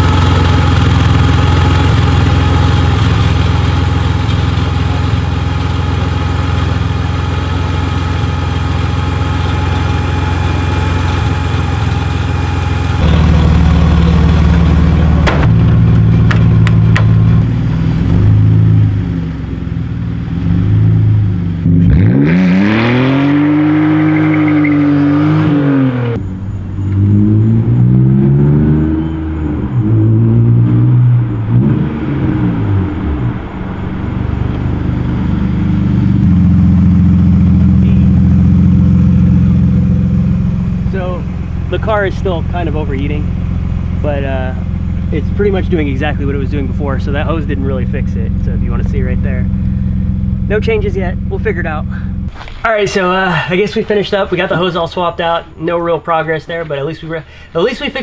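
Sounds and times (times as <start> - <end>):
car engine running: 0.0 - 22.1, 22.7 - 56.2
engine revving: 0.0 - 52.4.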